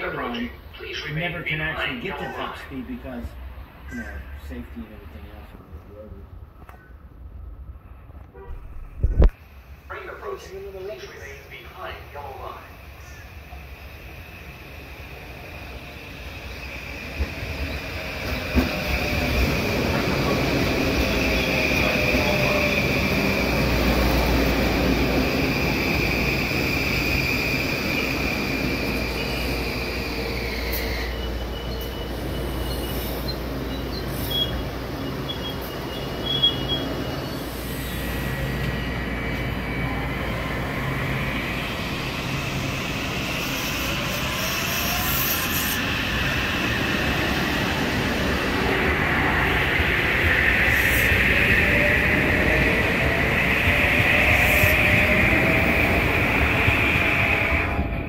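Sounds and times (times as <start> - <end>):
train wheels rumbling on rail: 10.0 - 58.0.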